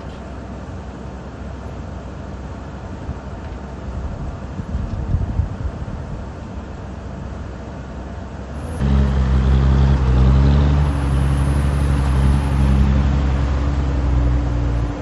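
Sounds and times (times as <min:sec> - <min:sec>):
excavator diesel engine running: 0:05.6 - 0:15.0.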